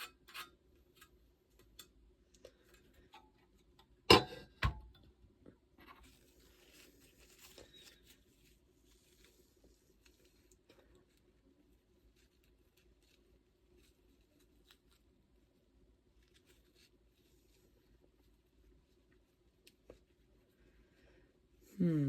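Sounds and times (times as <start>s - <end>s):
faint clicks of metal parts: 0.0s - 4.0s.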